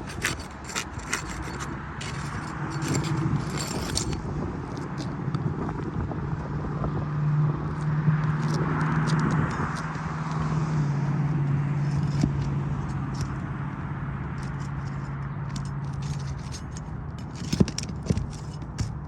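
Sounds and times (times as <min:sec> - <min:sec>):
scraping and clicking: 0:00.0 - 0:05.4, 0:08.2 - 0:10.5, 0:11.9 - 0:13.5, 0:14.3 - 0:19.0
low motor hum: 0:00.0 - 0:07.9.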